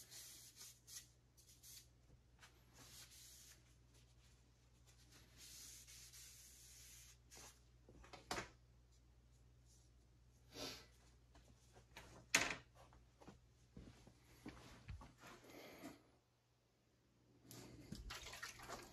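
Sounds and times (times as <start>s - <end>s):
soft rubbing: 2.4s - 7.6s.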